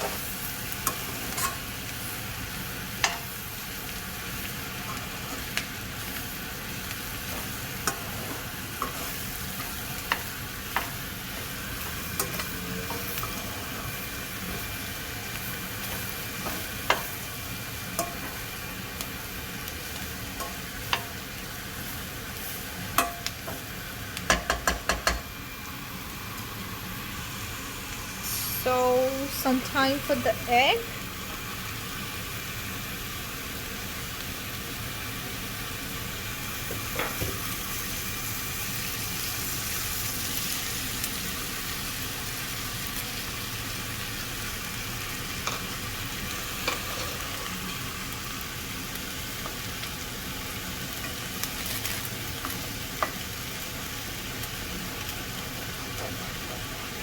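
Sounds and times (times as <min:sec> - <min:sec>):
vegetables sizzling in oil: 0:00.0 - 0:57.0
utensil knocking against pan: 0:24.3 - 0:25.2.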